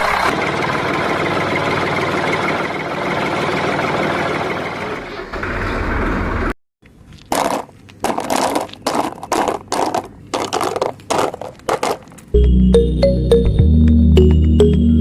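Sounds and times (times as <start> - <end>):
toy vehicle scraping soil and stones: 7.2 - 12.3.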